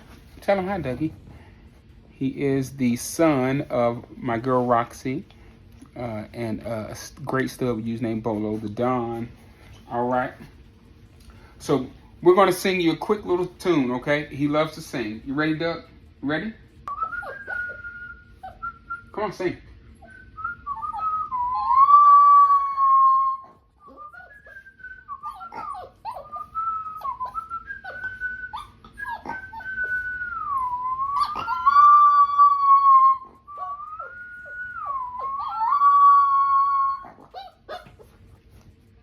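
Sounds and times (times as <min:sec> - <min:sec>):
puppy howling: 0:16.9 - 0:19.0, 0:20.0 - 0:38.2
puppy whimpering: 0:16.9 - 0:19.2, 0:19.9 - 0:38.6.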